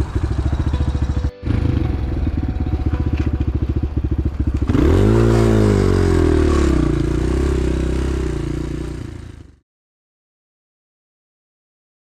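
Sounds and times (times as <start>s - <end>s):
motorbike engine revving: 0.0s - 9.6s.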